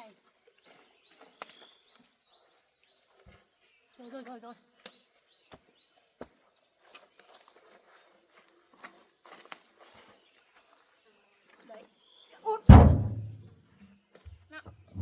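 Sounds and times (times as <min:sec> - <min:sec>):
sharp knocks: 0:12.7 - 0:13.4.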